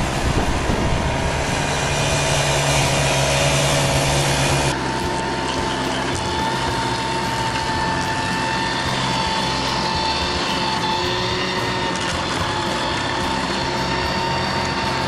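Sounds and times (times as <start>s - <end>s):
machine engine hum: 0.0s - 15.0s
steady high whine: 0.0s - 15.0s.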